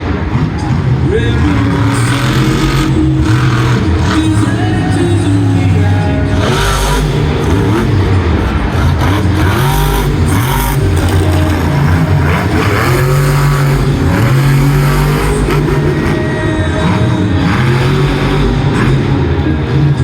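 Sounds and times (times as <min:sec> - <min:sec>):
truck engine revving hard: 0:00.0 - 0:20.0.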